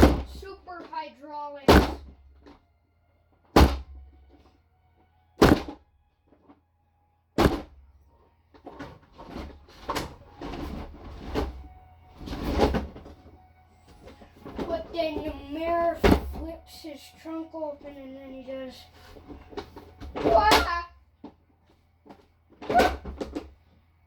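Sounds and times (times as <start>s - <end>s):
toys thudding on hard surface: 0.0s - 1.0s, 1.7s - 2.6s, 3.6s - 4.0s, 5.4s - 5.8s, 7.4s - 7.8s, 15.9s - 16.4s, 19.5s - 20.9s.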